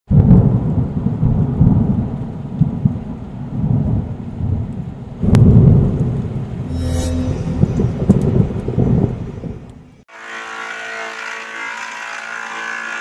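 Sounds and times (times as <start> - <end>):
thunder crack: 0.1 - 6.7, 7.5 - 9.7
thunder rumbling: 0.1 - 6.7, 7.4 - 10.0.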